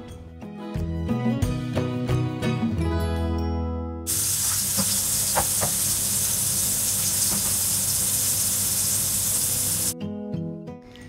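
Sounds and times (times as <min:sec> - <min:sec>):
background music: 0:00.0 - 0:04.1
meat sizzling in a frying pan: 0:04.1 - 0:10.0.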